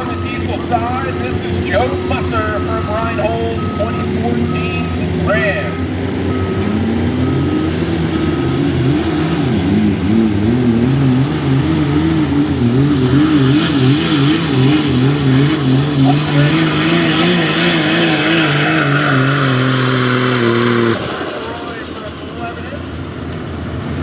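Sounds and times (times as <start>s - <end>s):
diesel engine under load: 0.0s - 24.0s
turbo whistle: 3.6s - 11.1s.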